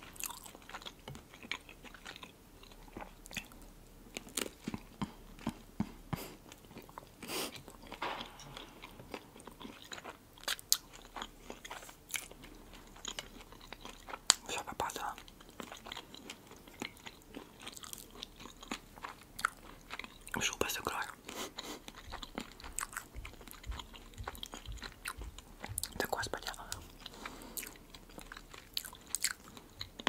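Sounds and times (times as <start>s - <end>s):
biting and chewing bread: 0.0s - 30.0s.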